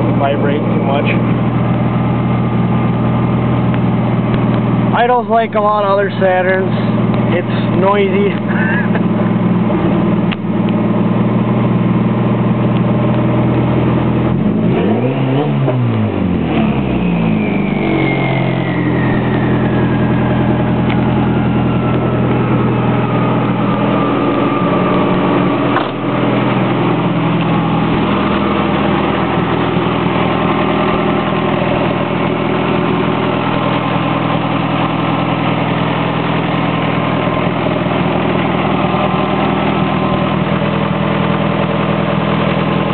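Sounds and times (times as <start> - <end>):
car engine idling and revving: 0.0 - 42.9
turbo whistle spinning down: 16.9 - 24.7.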